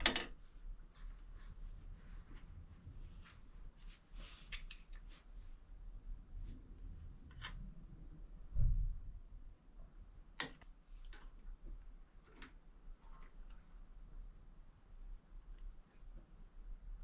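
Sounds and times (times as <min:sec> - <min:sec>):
light clicks of small parts: 0:04.5 - 0:05.1.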